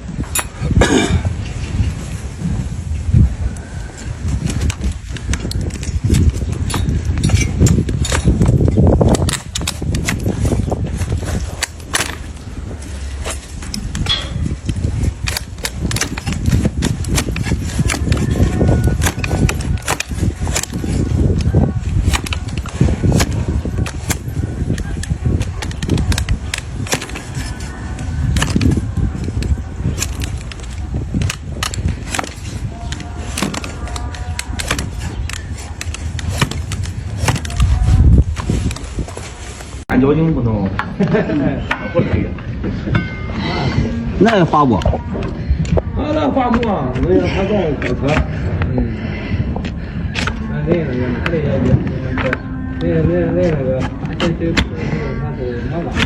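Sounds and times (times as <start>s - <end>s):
hoof cracking and snapping: 4.4s - 39.7s
low rumble: 47.6s - 56.0s.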